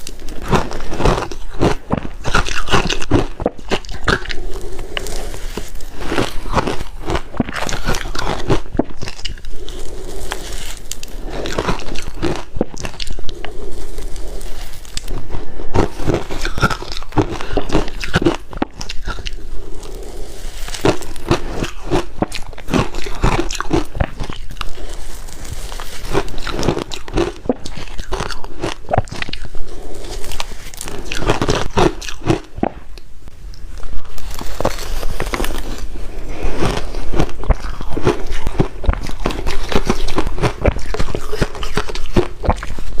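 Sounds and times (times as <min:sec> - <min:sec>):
ice being chewed: 0:00.0 - 0:43.0.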